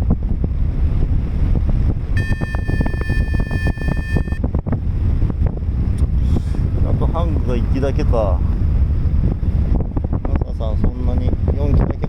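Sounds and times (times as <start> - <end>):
wind buffeting microphone: 0.0 - 12.0
electronic beep: 2.2 - 4.4.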